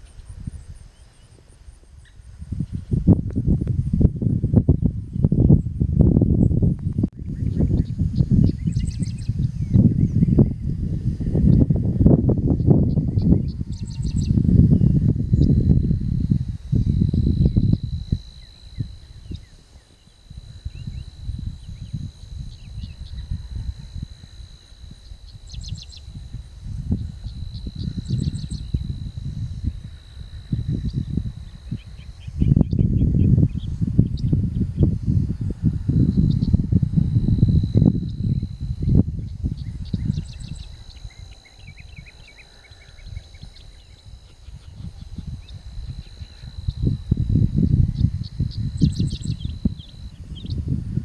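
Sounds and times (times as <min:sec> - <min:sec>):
high-pitched insect drone: 0:00.0 - 0:51.0
wind buffeting microphone: 0:00.0 - 0:51.0
birds chirping: 0:07.2 - 0:35.1.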